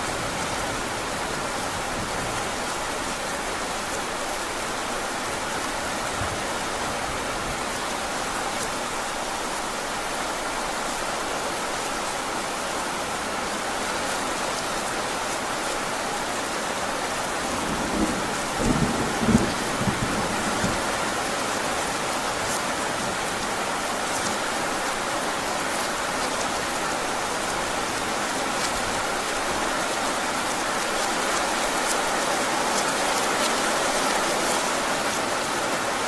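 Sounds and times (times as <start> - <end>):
heavy rain falling: 0.0 - 36.0
low rumble of thunder: 17.5 - 21.2.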